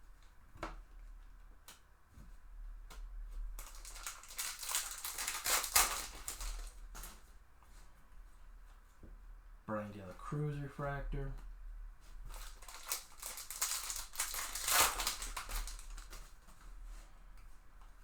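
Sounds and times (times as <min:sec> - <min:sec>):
foil wrapper crinkling and tearing: 0:03.6 - 0:07.2, 0:12.3 - 0:16.5.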